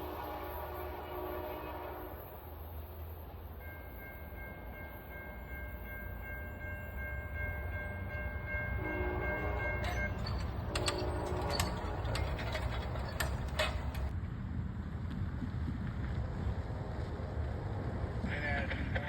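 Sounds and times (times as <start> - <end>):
locomotive air horn chord: 0.0 - 2.5, 8.7 - 12.6
passing train rumble: 0.0 - 19.0.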